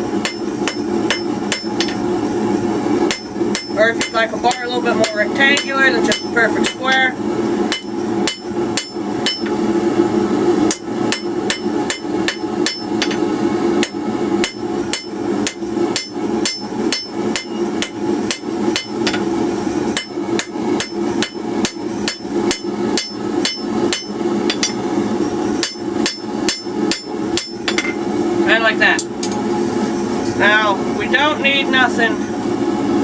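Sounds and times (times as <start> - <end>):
hammer striking metal on anvil: 0.2 - 2.0, 3.1 - 7.1, 7.7 - 9.6, 10.7 - 13.2, 13.8 - 19.3, 20.0 - 24.8, 25.6 - 28.0.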